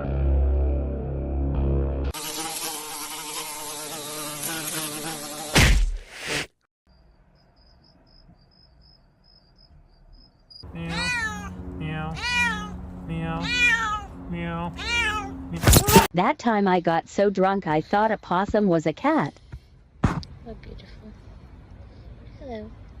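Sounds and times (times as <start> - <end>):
cat meowing: 10.8 - 12.8, 13.4 - 14.1, 14.7 - 16.1.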